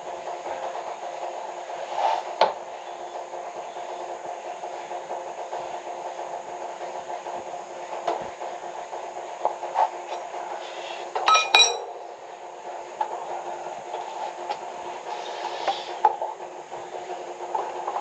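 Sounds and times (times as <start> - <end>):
steady hum: 0.0 - 18.0
metal objects knocking: 11.3 - 11.9
sharp ringing clinks: 11.3 - 11.9.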